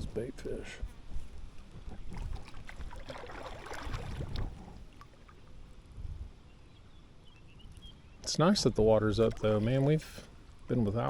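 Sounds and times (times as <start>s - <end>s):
water splashing around boat: 1.9s - 5.6s, 9.1s - 10.2s.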